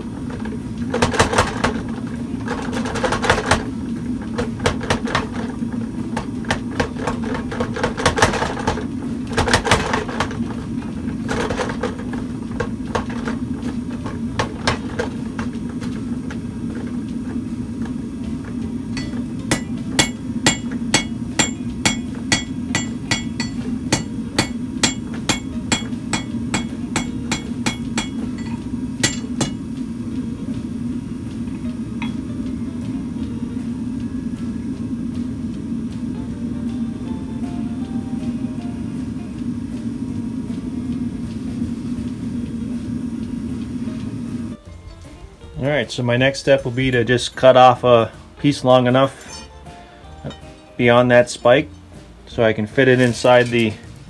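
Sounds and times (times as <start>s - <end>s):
power hammer pounding steel: 0.0s - 30.1s
motor hum: 0.0s - 51.0s.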